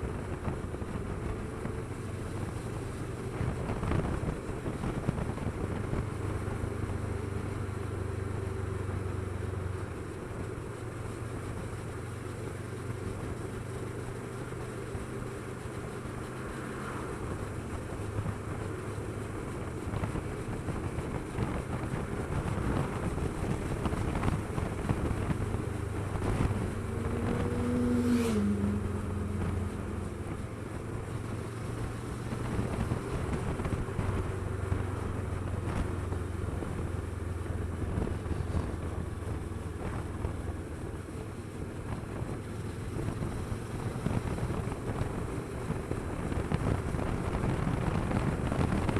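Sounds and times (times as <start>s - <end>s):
motorcycle engine running: 0.0s - 48.9s
wind buffeting microphone: 17.3s - 48.9s.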